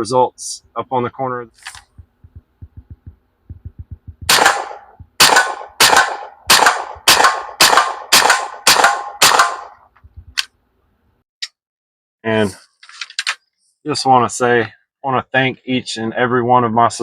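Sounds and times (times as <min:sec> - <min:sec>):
air rifle shots: 0:04.3 - 0:09.9.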